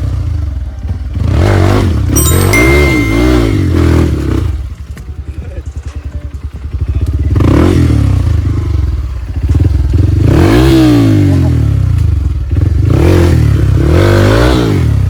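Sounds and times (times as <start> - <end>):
motorcycle engine revving: 6.3 - 15.0.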